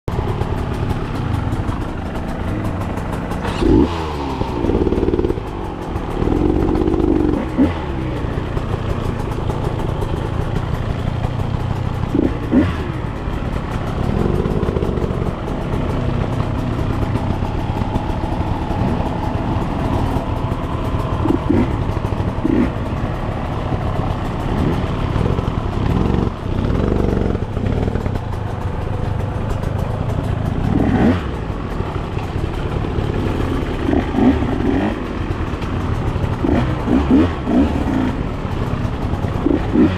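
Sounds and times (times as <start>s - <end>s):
dirt bike engine revving: 2.2s - 8.8s, 12.0s - 28.8s, 30.5s - 38.3s, 39.3s - 39.9s.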